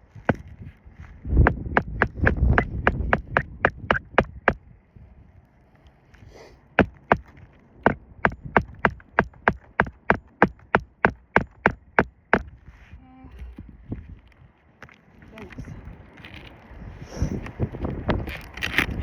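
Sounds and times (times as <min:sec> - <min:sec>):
hammer striking nail: 0:01.4 - 0:04.6, 0:06.8 - 0:12.5.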